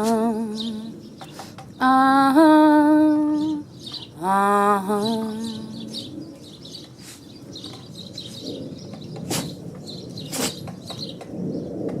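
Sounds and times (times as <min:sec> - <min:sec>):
bird chirps: 0:00.0 - 0:02.0, 0:03.0 - 0:04.2, 0:04.9 - 0:11.8
short sharp sneezes: 0:10.3 - 0:10.6.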